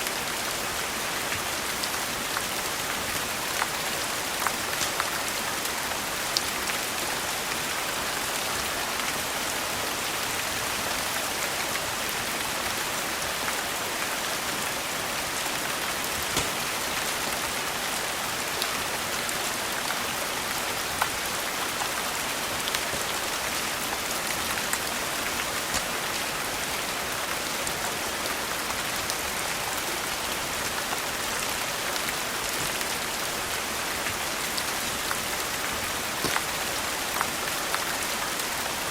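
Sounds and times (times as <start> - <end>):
steady rain: 0.0 - 38.9
wood fire crackling: 15.8 - 17.3, 21.4 - 26.6, 32.0 - 37.2.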